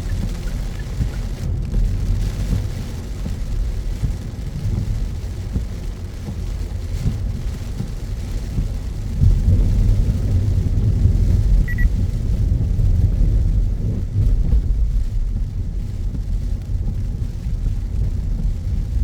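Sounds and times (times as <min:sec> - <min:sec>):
car road rumble: 0:00.0 - 0:19.0
hiss of rain on wet road: 0:00.0 - 0:19.0.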